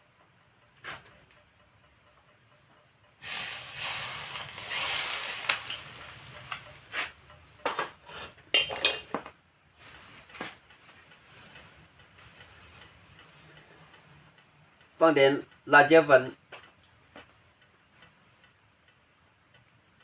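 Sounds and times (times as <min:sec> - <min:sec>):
garlic sizzling in hot oil: 0:03.2 - 0:06.6
metal cookware clinking: 0:07.7 - 0:09.3.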